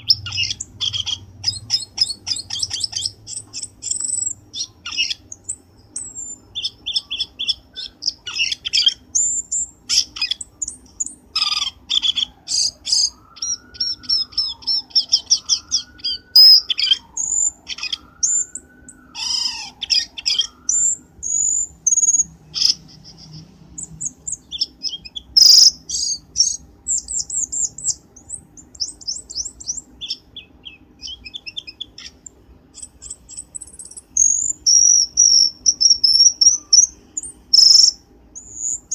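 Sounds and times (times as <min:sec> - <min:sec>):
bird chirps and whistles: 0:00.0 - 0:38.9
low gliding whistle: 0:12.5 - 0:21.7.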